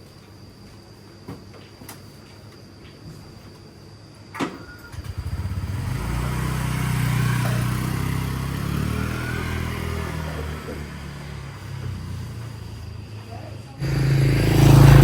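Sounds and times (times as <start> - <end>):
engine starting and running: 4.6 - 12.6, 13.8 - 15.0.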